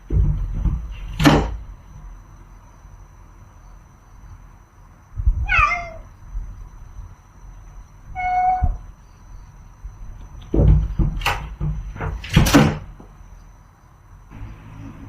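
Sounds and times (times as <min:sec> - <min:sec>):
cat meowing: 0:05.3 - 0:06.1, 0:08.1 - 0:08.8.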